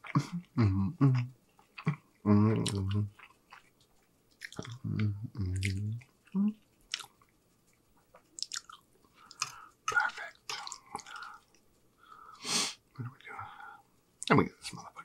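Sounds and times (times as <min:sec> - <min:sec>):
low mm hums of enjoyment: 0:00.0 - 0:15.0
close-up chewing: 0:01.2 - 0:12.3
wet mouth clicks and smacks: 0:04.3 - 0:04.8, 0:06.9 - 0:11.3.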